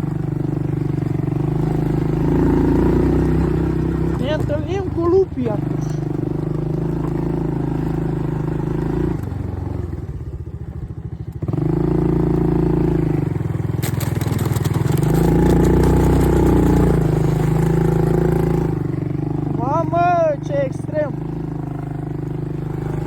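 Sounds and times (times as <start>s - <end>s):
atv engine revving and idling: 0.0s - 23.0s
clattering and scraping: 13.7s - 18.1s.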